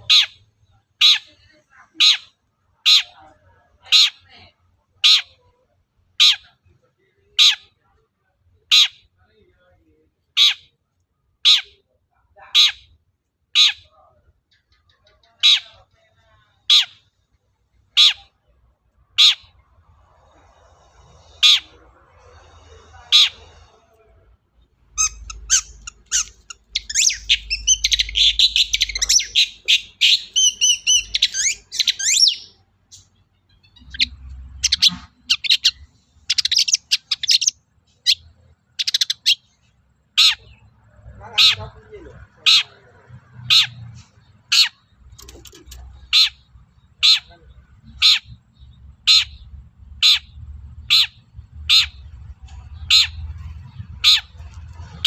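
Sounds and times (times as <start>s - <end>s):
shrike harsh calls: 19.1s - 24.0s, 24.9s - 37.5s
bird fast chattering song: 25.0s - 55.0s.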